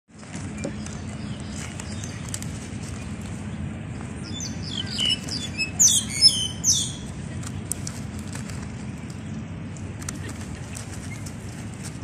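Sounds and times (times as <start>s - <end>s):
low background noise: 0.1s - 12.0s
birds chirping and whistling: 0.4s - 7.1s.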